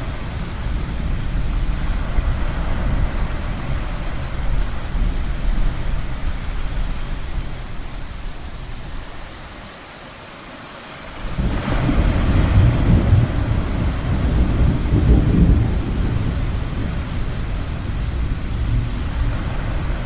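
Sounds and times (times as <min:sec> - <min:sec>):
ocean surf rushing: 0:00.0 - 0:20.0
rolling thunder: 0:11.2 - 0:20.0.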